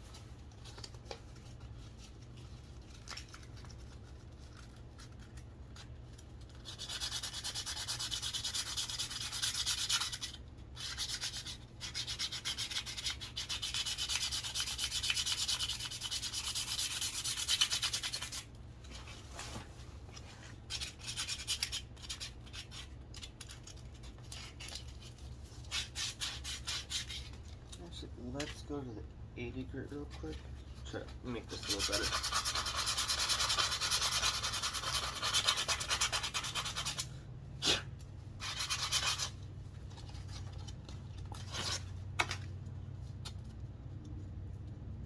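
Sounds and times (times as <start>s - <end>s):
sandpaper rubbing on wood: 6.6s - 18.4s, 31.5s - 37.0s, 38.4s - 39.3s.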